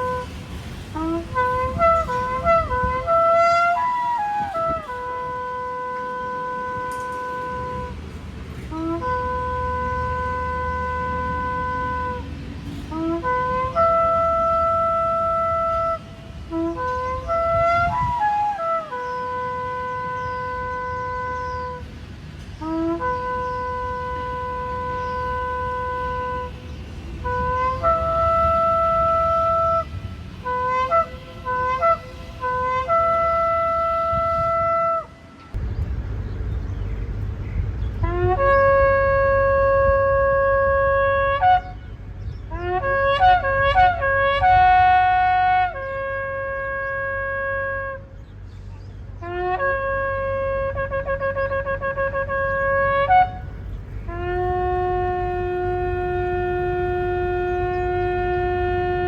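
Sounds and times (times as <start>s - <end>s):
shofar blasts: 0.0s - 21.9s, 22.6s - 35.6s, 38.0s - 48.2s, 49.2s - 59.0s
steady low rumble: 20.5s - 59.0s.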